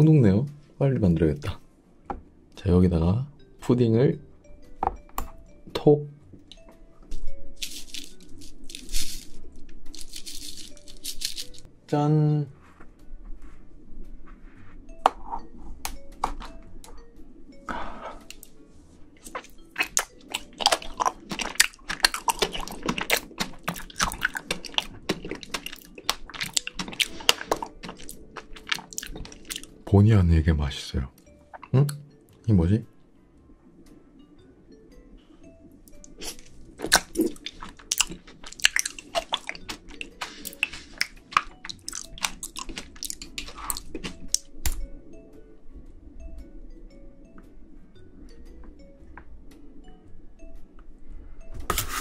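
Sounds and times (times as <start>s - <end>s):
soft background music: 0.0s - 52.0s
chewing crunchy ice cream: 19.2s - 29.8s, 36.0s - 44.5s.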